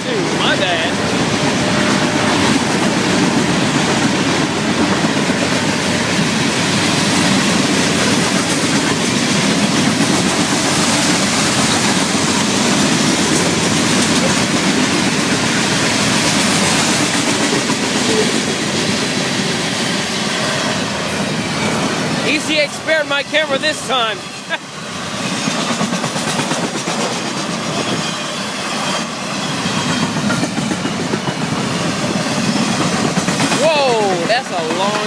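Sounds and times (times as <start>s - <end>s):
freight train rumbling past: 0.0s - 35.0s
wheels clattering over rail joints: 28.9s - 35.0s.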